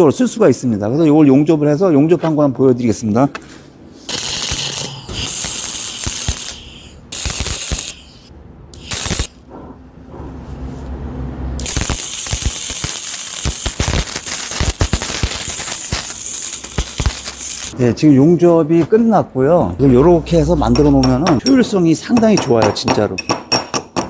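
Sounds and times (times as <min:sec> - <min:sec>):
welding arc crackling: 0:04.1 - 0:09.4, 0:11.6 - 0:17.8.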